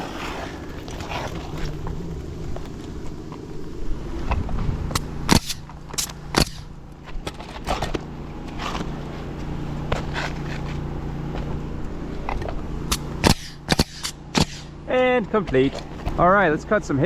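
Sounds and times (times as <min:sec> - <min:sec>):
air compressor humming: 0:04.8 - 0:15.2
nail gun firing sharp shots: 0:05.0 - 0:06.7, 0:12.9 - 0:14.8.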